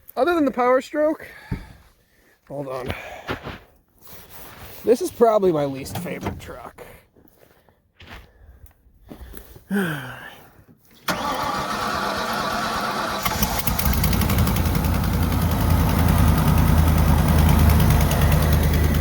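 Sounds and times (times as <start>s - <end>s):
starter motor cranking: 11.0s - 19.0s
diesel engine idling: 11.1s - 19.0s.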